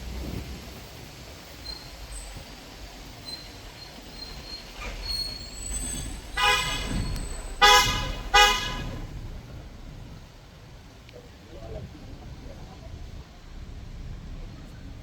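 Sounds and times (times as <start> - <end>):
vehicle horn honking: 6.1 - 9.4.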